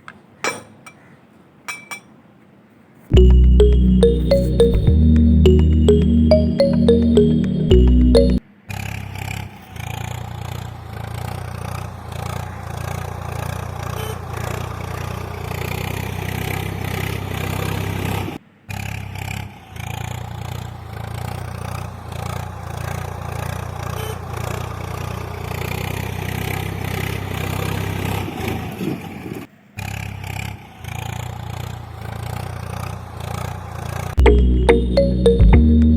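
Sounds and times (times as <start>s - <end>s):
small motor running with clatter: 9.3s - 28.6s, 29.3s - 34.1s.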